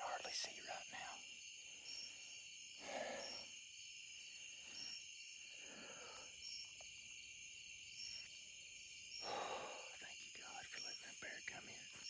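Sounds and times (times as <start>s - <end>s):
short high insect chirp: 0.0s - 12.0s
soft breathing: 1.9s - 3.5s, 4.6s - 6.5s, 9.2s - 10.5s.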